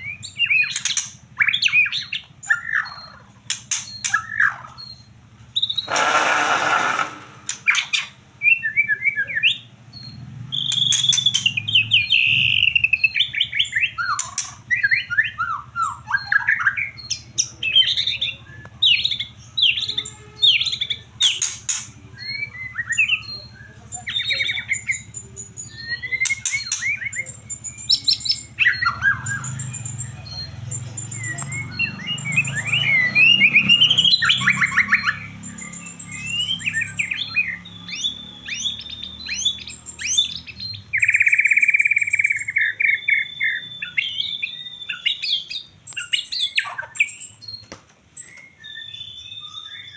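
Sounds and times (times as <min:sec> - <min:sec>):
bird singing whistled song: 0:00.0 - 0:05.9, 0:07.6 - 0:21.4, 0:22.0 - 0:49.9
harsh rasping bird notes: 0:05.6 - 0:08.2.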